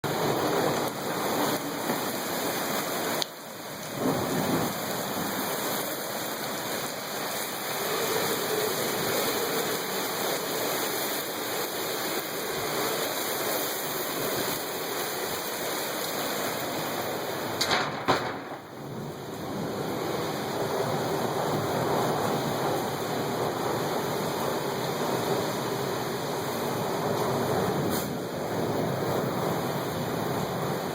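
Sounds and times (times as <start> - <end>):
heavy rain: 0.0 - 30.9
squally wind: 18.2 - 30.9.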